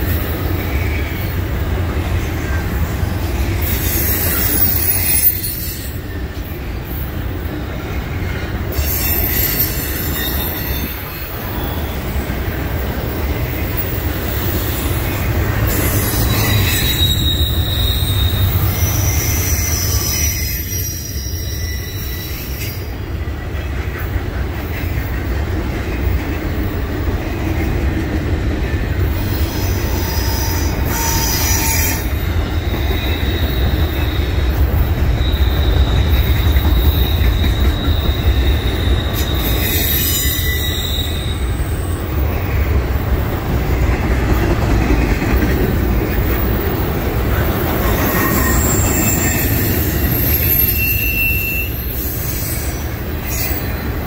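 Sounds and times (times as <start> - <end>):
train wheels rumbling on rail: 0.0 - 54.0
high wheel squeal: 3.4 - 7.1, 8.2 - 12.6, 13.5 - 23.0, 29.1 - 42.7, 46.0 - 54.0.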